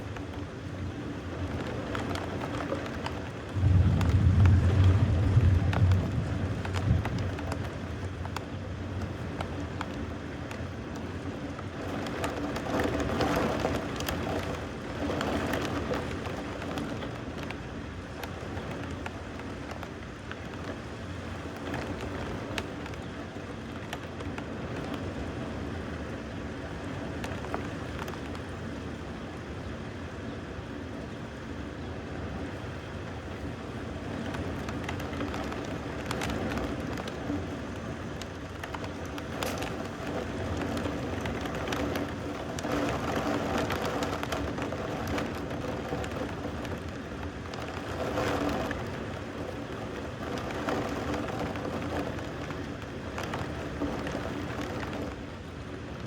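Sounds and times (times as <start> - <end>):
steady rain falling: 0.0 - 56.0
low rumble of thunder: 1.7 - 9.2.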